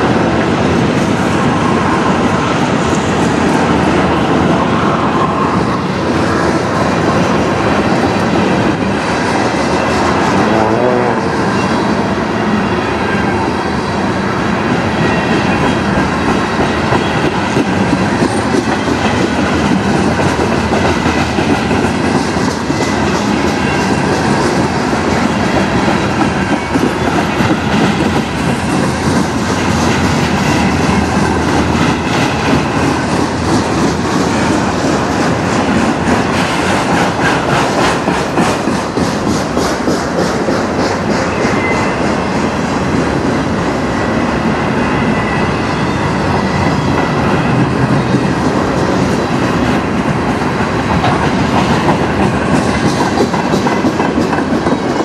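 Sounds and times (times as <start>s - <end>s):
freight train wheels clattering: 13.9s - 55.0s.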